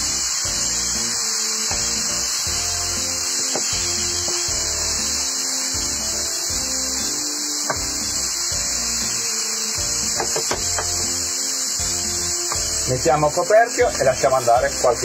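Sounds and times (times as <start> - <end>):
background music: 0.0 - 15.0
food sizzling in a frying pan: 0.0 - 15.0.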